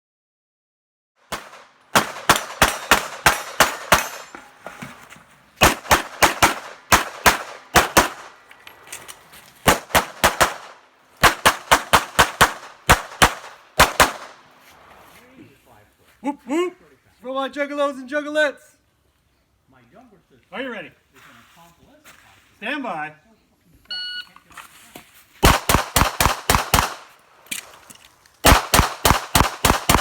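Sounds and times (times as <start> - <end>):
pistol shots with echo: 1.3 - 4.4, 5.6 - 8.4, 9.7 - 14.4, 25.4 - 27.2, 28.4 - 30.0.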